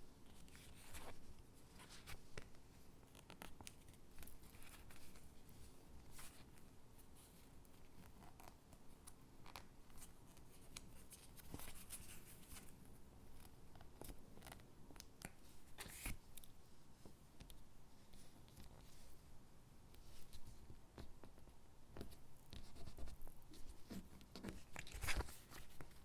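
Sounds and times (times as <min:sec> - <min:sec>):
paper peeling and rustling: 0:23.8 - 0:26.0.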